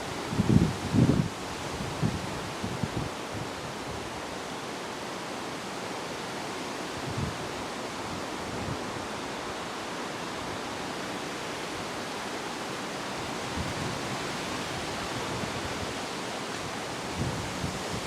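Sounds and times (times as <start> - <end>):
wind buffeting microphone: 0.3 - 3.1, 13.2 - 18.0.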